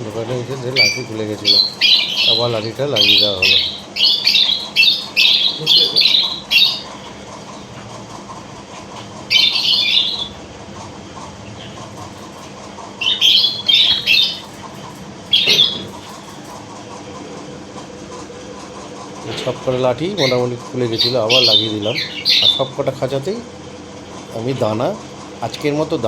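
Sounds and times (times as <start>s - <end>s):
lovebirds screeching: 0.3s - 16.7s, 19.2s - 23.4s.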